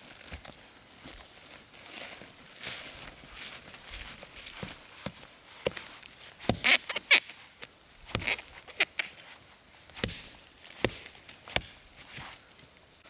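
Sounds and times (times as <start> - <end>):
axe chopping wood: 6.4 - 6.8, 8.0 - 9.0, 9.9 - 12.2.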